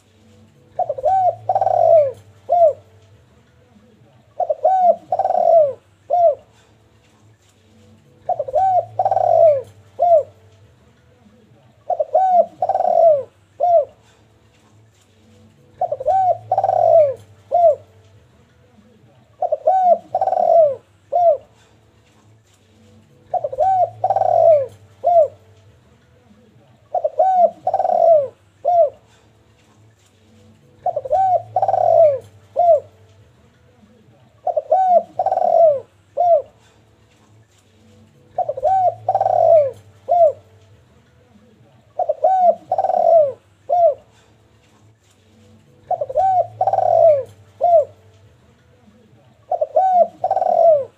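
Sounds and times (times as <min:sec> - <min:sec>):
dove cooing: 0:00.0 - 0:03.0, 0:03.8 - 0:06.8, 0:08.1 - 0:10.5, 0:11.8 - 0:14.3, 0:15.6 - 0:18.0, 0:19.3 - 0:21.8, 0:23.2 - 0:25.6, 0:26.8 - 0:29.4, 0:30.6 - 0:33.1, 0:33.8 - 0:36.9, 0:38.0 - 0:40.7, 0:41.3 - 0:44.4, 0:45.7 - 0:48.2, 0:49.4 - 0:50.9.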